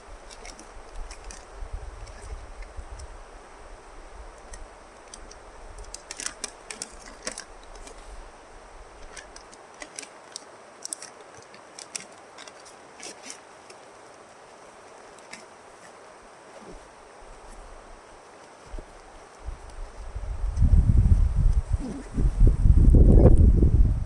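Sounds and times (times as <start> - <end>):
wind rumbling on microphone: 0.0 - 9.4, 16.6 - 24.0
steady outdoor hiss: 0.0 - 24.0.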